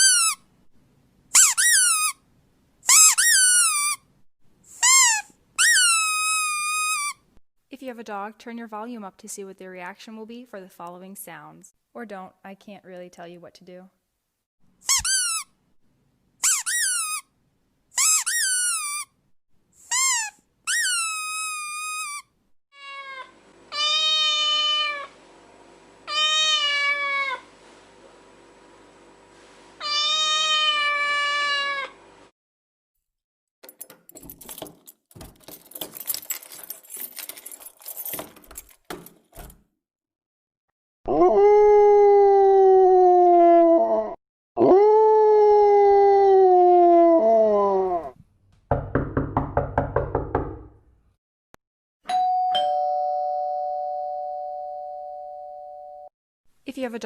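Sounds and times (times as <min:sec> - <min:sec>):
high squeaky calls: 0:02.9 - 0:04.0, 0:04.8 - 0:07.2, 0:16.4 - 0:17.2, 0:18.0 - 0:19.1, 0:19.9 - 0:22.3
cat meowing: 0:22.8 - 0:25.1, 0:26.1 - 0:27.4, 0:29.8 - 0:32.0
dog howling: 0:41.1 - 0:48.2.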